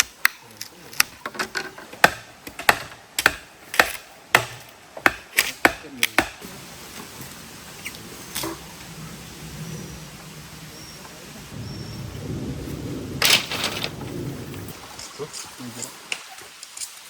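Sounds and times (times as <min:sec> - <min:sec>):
sharp chopping blows: 0:02.0 - 0:06.4
rain hissing: 0:06.4 - 0:17.0.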